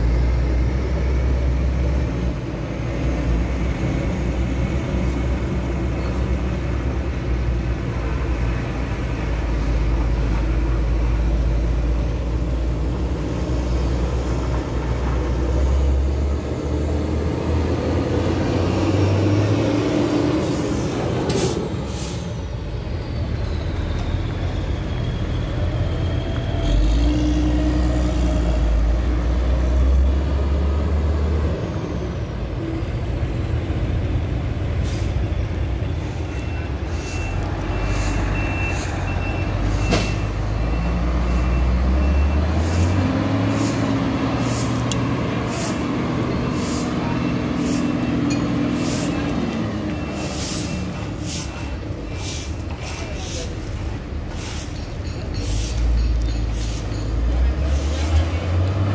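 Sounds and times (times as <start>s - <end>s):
reversing alarm beeping: 35.9s - 42.6s, 46.2s - 50.9s.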